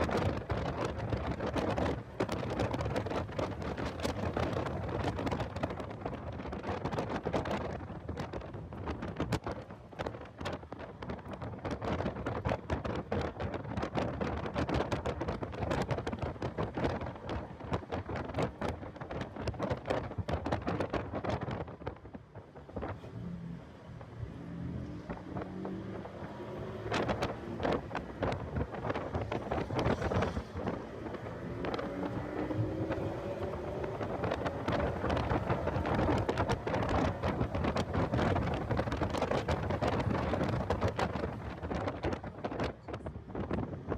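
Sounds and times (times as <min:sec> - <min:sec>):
wind buffeting microphone: 0:00.0 - 0:43.9
car engine accelerating: 0:22.7 - 0:41.8.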